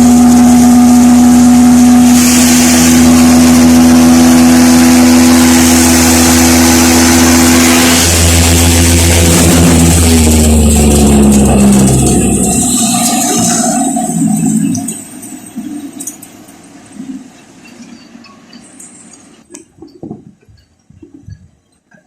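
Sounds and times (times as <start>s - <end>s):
tractor engine running: 0.0s - 20.2s
mechanical hiss: 2.0s - 9.8s.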